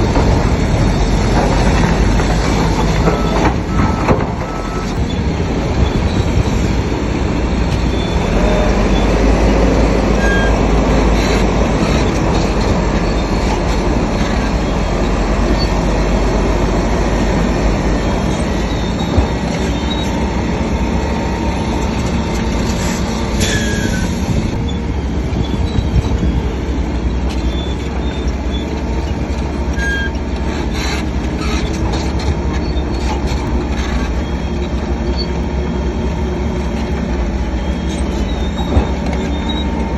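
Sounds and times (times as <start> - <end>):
clatter of steel tracks: 0.0 - 39.9
diesel engine rumbling: 0.0 - 39.9
short high squeaks: 18.2 - 20.2, 22.3 - 26.4, 27.3 - 36.0, 36.7 - 39.9
falling squeal: 18.3 - 20.2, 22.8 - 24.8, 29.8 - 30.2, 37.5 - 39.9.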